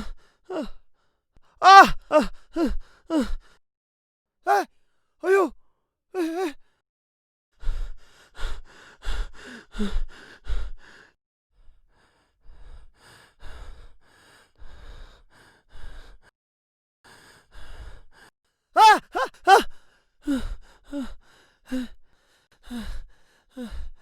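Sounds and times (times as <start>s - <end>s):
person panting heavily: 7.6s - 11.2s, 11.9s - 16.3s, 17.1s - 24.0s.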